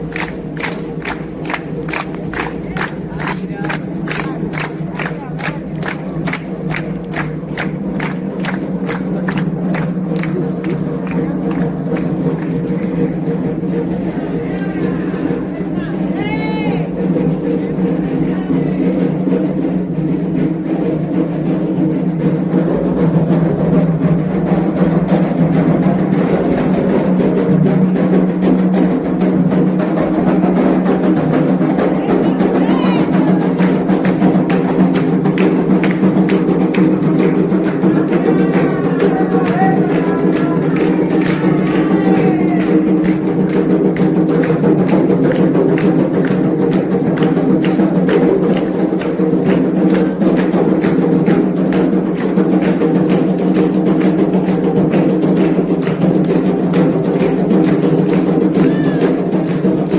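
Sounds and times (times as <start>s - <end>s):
fast hand drumming: 0.0s - 59.9s
voices singing: 37.8s - 43.0s.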